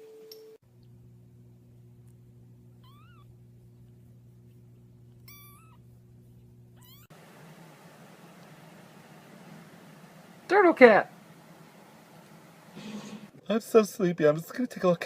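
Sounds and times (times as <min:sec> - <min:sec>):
steady low hum: 0:00.6 - 0:14.1
cat meowing: 0:02.8 - 0:03.3, 0:05.2 - 0:05.8, 0:06.8 - 0:07.1.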